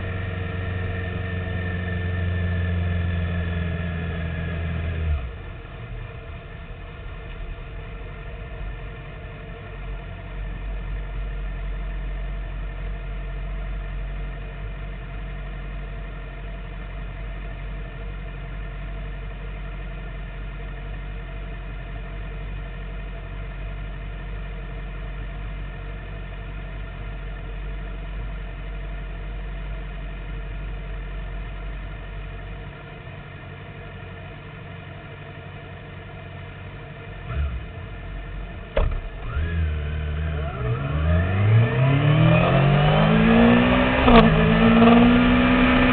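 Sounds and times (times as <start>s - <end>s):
motorcycle engine idling: 4.9s - 40.6s.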